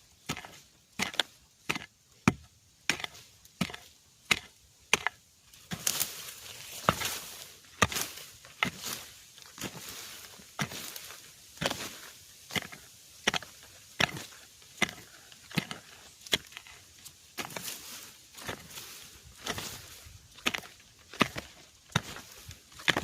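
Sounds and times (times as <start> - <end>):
tool chopping bamboo: 0.2 - 9.8, 11.6 - 16.8, 18.4 - 18.8, 19.4 - 23.0
rustling hiss: 5.4 - 22.9.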